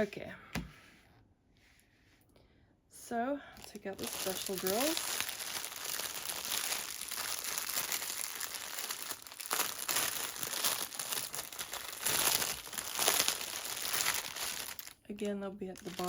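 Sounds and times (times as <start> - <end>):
plastic bags crinkling: 3.6 - 16.0.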